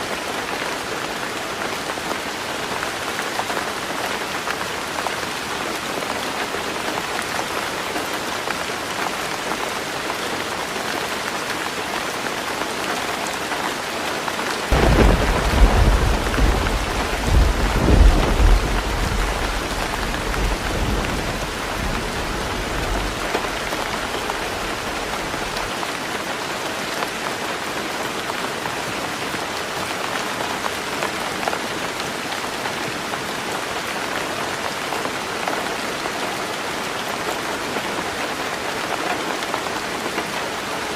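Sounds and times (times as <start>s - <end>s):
heavy rain on a tin roof: 0.0s - 40.9s
thunder rumbling: 14.7s - 25.7s.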